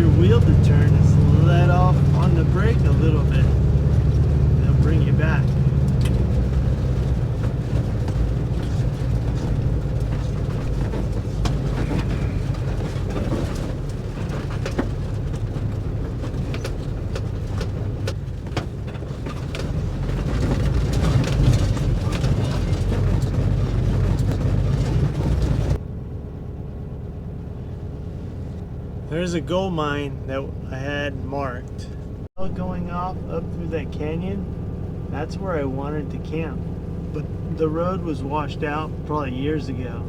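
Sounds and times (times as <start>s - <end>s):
engine running at low pitch: 0.0s - 40.0s
body knocks and rattles: 3.6s - 25.8s.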